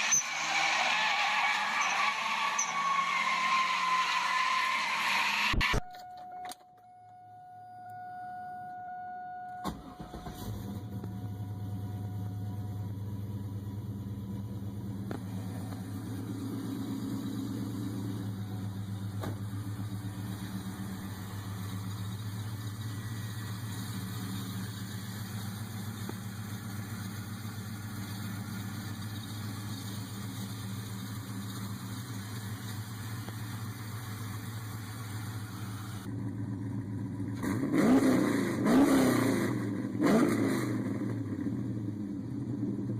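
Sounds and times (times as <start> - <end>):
car engine idling: 9.6 - 37.5
car engine revving: 9.8 - 42.9.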